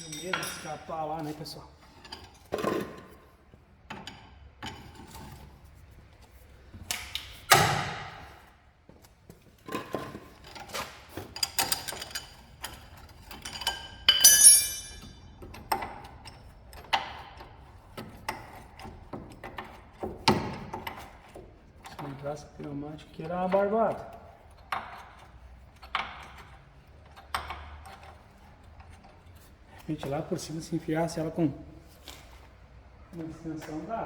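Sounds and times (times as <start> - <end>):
ringing metal clink: 0.0 - 0.9, 13.5 - 15.3
hand tools knocking on metal: 0.0 - 1.0, 13.5 - 16.1.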